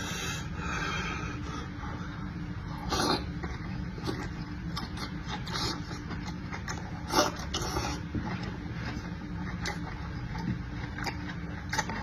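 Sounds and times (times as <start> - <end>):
steady low hum: 0.0 - 12.0
chewing and slurping: 2.7 - 12.0.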